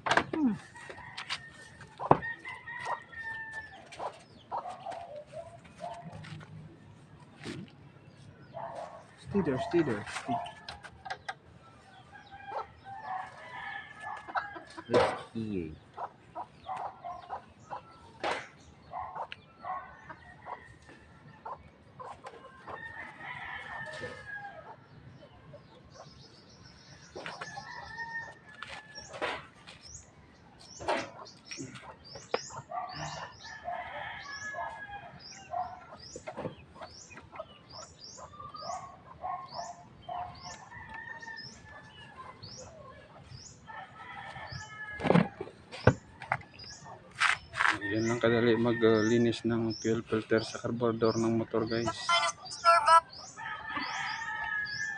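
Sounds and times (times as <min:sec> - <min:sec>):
chickens clucking: 0:00.0 - 0:54.6
rooster crowing: 0:51.9 - 0:54.9.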